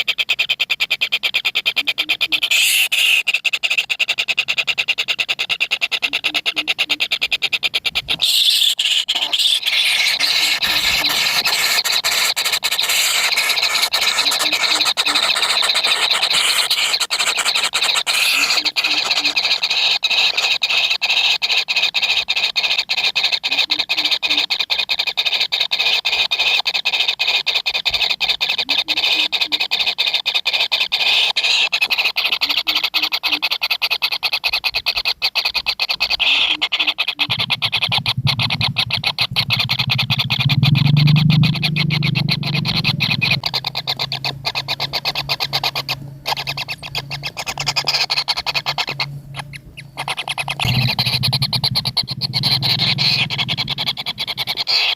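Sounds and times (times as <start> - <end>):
nestlings calling with pulsing buzz: 0.0 - 54.9
low hum: 37.2 - 54.7.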